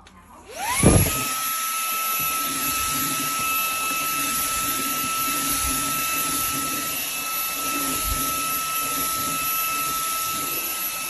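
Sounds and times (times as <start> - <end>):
handheld vacuum running: 0.5 - 11.0.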